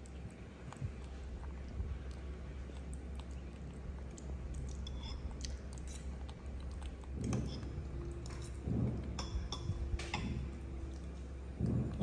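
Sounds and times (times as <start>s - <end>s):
wet chewing and mouth smacking: 0.0s - 12.0s
metal spoons clicking in bowls: 9.2s - 10.4s.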